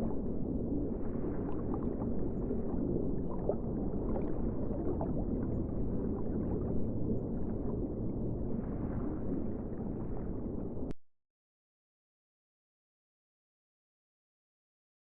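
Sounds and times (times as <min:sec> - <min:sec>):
sea water churning and sloshing: 0:00.0 - 0:10.9.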